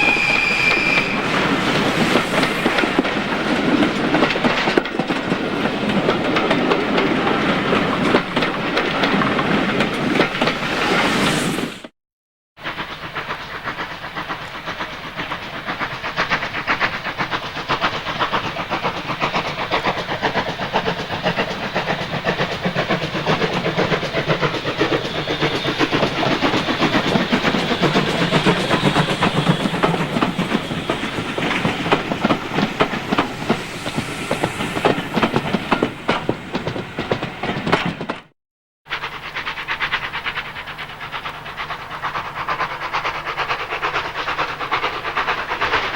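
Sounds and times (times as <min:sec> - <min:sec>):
steam locomotive exhaust beats: 0:00.0 - 0:11.9, 0:12.6 - 0:38.3, 0:38.9 - 0:45.9
train wheel clatter: 0:00.0 - 0:11.9, 0:12.6 - 0:38.3, 0:38.9 - 0:45.9.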